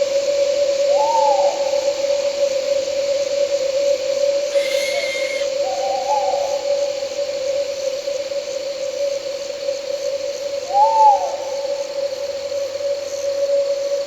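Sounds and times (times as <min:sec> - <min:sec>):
night insects chirring: 0:04.4 - 0:14.0
owl hooting: 0:04.5 - 0:05.8.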